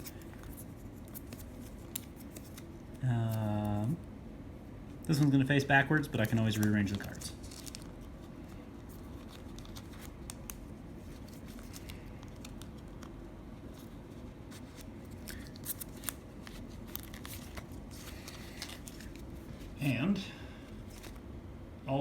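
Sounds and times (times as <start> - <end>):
cards and plastic sleeves clicking: 6.0 - 7.9, 14.6 - 19.3.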